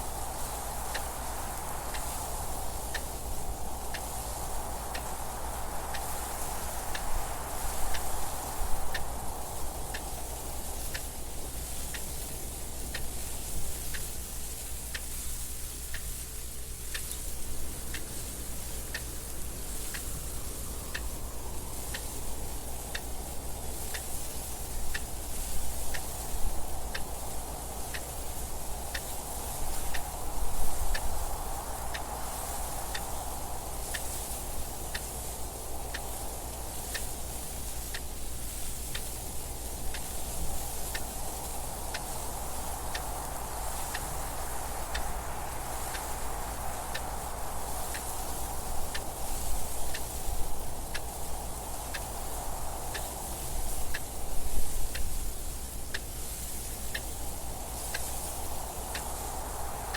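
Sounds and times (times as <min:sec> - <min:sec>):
wind gusts: 0:00.0 - 0:59.9
clock ticking: 0:09.8 - 0:11.2, 0:16.9 - 0:21.2, 0:21.8 - 0:38.2.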